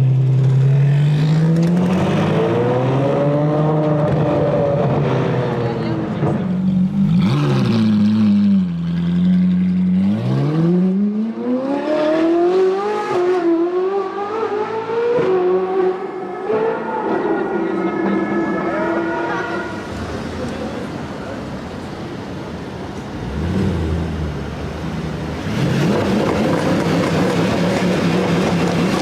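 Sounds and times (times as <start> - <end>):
sports car engine revving: 1.1 - 16.8.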